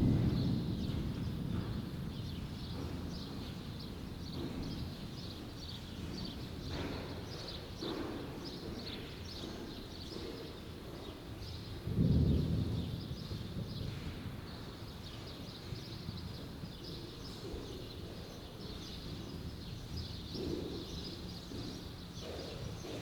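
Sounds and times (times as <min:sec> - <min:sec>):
low storm rumble: 0:00.0 - 0:03.2, 0:11.8 - 0:15.0
small birds chirping: 0:01.6 - 0:12.4, 0:14.6 - 0:23.0
thunder rumbling: 0:11.8 - 0:14.5.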